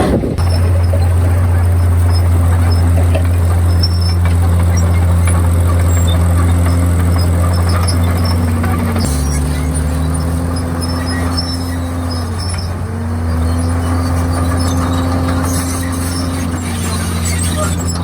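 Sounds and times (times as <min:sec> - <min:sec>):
bulldozer diesel engine running: 0:00.0 - 0:18.0.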